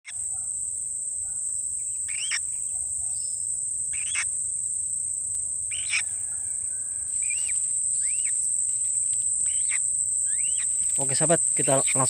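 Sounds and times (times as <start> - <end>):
high-pitched insect trill: 0.1 - 12.0
rising bird calls: 5.7 - 8.5, 9.4 - 12.0.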